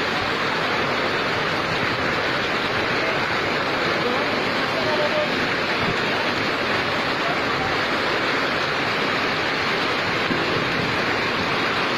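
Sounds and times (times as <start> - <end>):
heavy rain pouring: 0.0 - 11.9.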